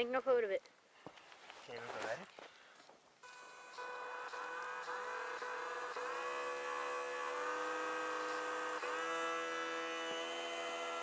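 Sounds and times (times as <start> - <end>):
electric motor propeller whine: 3.2 - 11.0.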